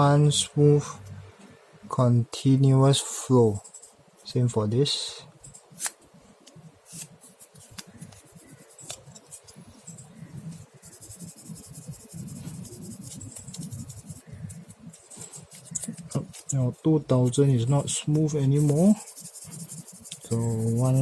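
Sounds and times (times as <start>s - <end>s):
sandpaper scratching on plastic: 6.9s - 21.0s.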